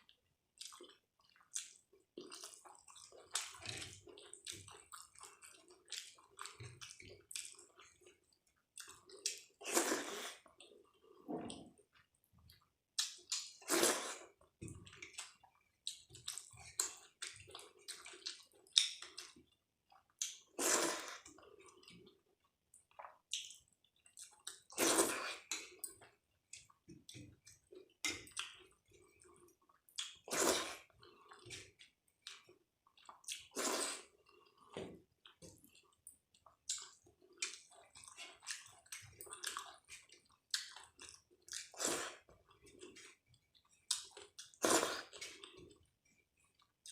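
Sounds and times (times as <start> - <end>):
wet chewing: 0.6 - 11.2, 12.5 - 46.9.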